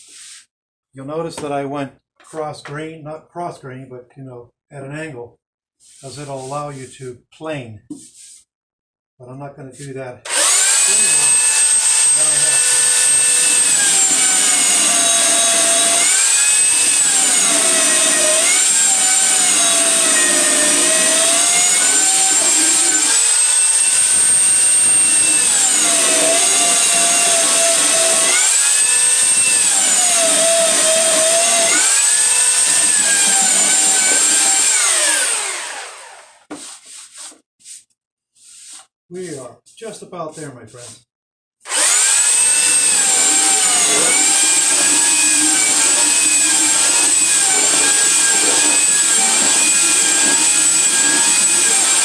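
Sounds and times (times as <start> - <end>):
electric sander whining: 10.3 - 36.4, 41.7 - 52.0.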